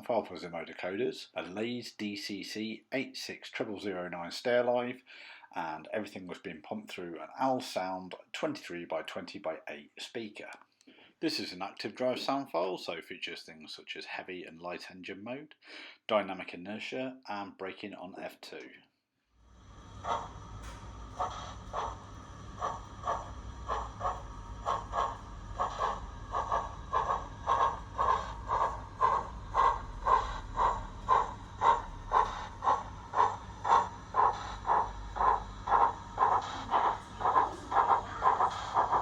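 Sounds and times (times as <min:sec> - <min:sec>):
model steam locomotive chuffing: 0:19.5 - 0:39.0.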